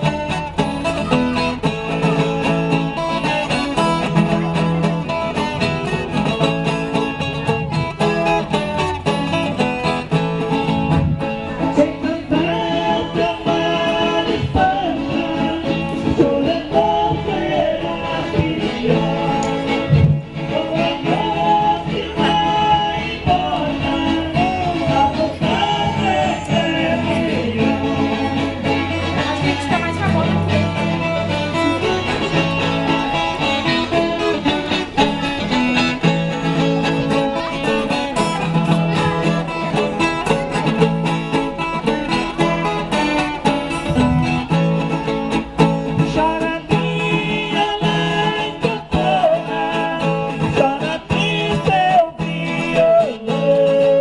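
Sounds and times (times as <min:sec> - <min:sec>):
plucked acoustic guitar and viola: 0:00.0 - 0:54.0.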